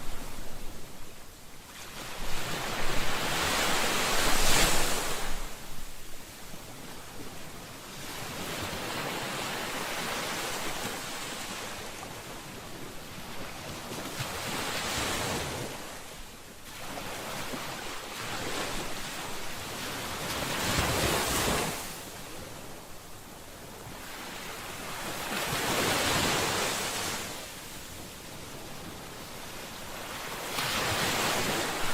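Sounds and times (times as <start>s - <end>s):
ocean waves breaking: 28.5s - 31.9s.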